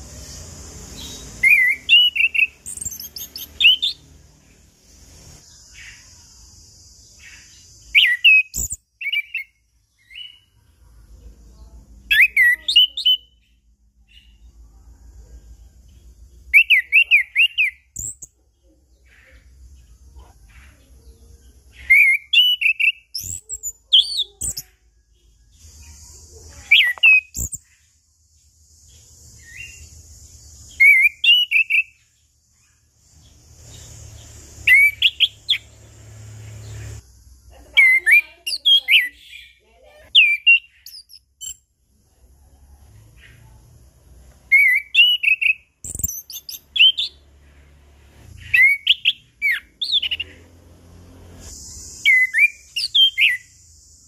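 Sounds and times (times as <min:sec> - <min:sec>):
thrush singing whistled notes: 0:00.0 - 0:06.1, 0:07.1 - 0:10.6, 0:12.1 - 0:14.5, 0:16.4 - 0:18.3, 0:21.7 - 0:27.8, 0:29.2 - 0:37.0, 0:37.7 - 0:41.7, 0:44.5 - 0:54.0.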